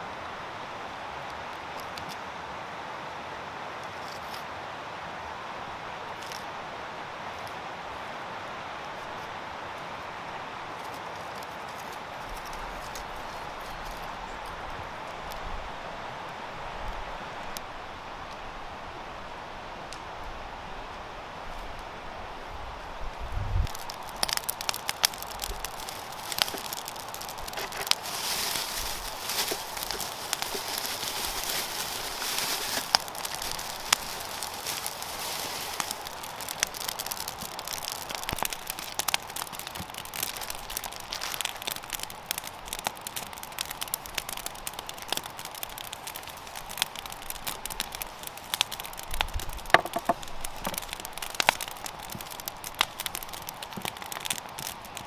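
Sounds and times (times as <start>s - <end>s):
campfire crackling and popping: 10.7s - 15.4s, 23.6s - 55.0s
fire hiss: 22.9s - 55.0s.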